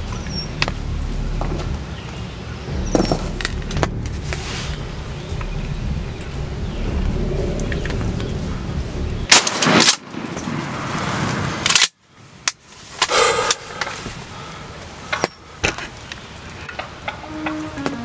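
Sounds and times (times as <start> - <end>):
loud burst of noise: 0.0 - 11.5
gunshot: 9.3 - 11.8.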